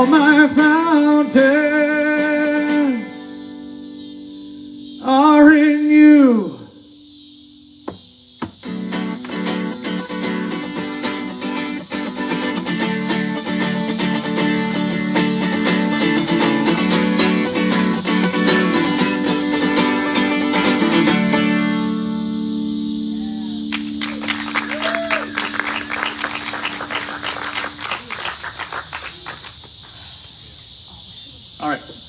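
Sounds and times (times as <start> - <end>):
guitar strumming: 0.0 - 5.2, 7.5 - 28.8.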